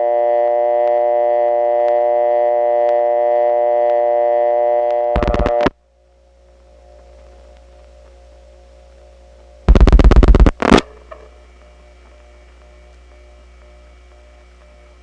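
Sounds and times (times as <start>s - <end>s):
buzzy telephone dial tone: 5.2s - 5.7s
low hum: 5.2s - 5.7s, 9.7s - 13.7s
rotary dial pulses: 5.2s - 5.7s, 9.7s - 10.8s
faint tick: 7.2s - 8.2s.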